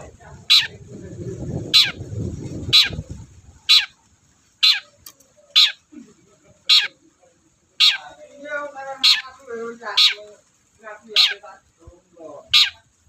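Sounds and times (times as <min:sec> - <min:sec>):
shrike harsh calls: 0:03.6 - 0:06.0, 0:06.6 - 0:11.7, 0:12.4 - 0:13.0.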